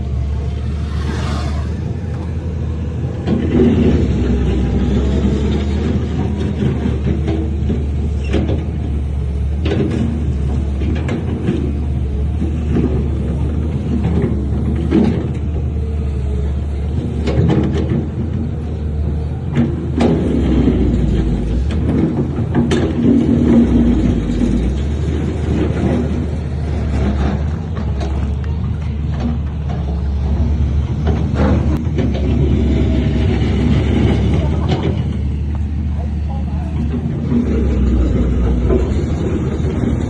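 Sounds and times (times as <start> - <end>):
diesel engine drone: 0.0 - 40.0
metal knocks and clanks: 19.5 - 28.4.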